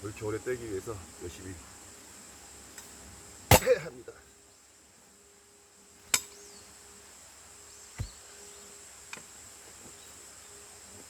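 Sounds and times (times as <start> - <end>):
axe striking log: 3.5 - 3.8, 8.0 - 8.2.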